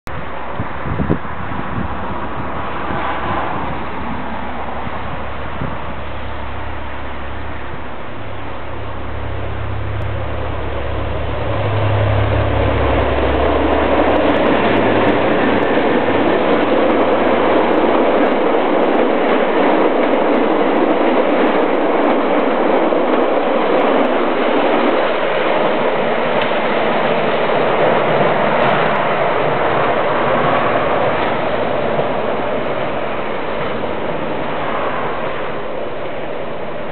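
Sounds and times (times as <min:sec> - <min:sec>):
deep low rumble: 0:03.4 - 0:17.2
train wheels clattering on rails: 0:10.1 - 0:36.9.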